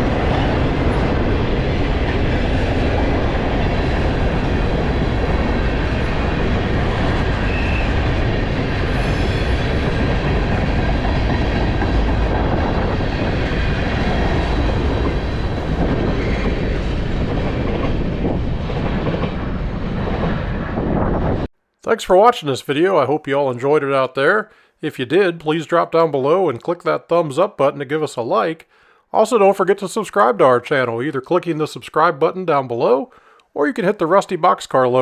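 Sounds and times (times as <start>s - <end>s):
train wheels rumbling on track: 0.0s - 21.5s.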